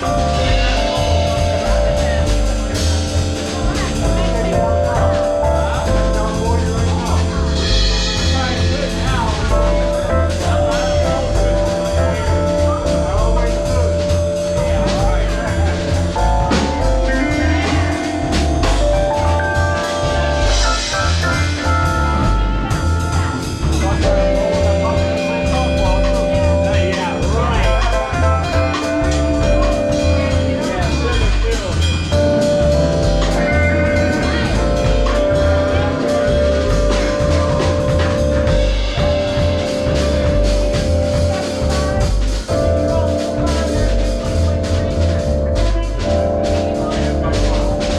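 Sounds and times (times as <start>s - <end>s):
bass line: 0.0s - 47.9s
drums: 0.0s - 47.9s
live band playing: 0.0s - 47.9s
steady held note: 0.0s - 47.9s.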